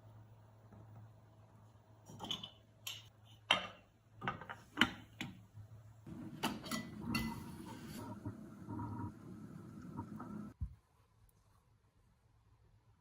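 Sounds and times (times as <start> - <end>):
dishes and cutlery clinking: 6.4 - 8.0.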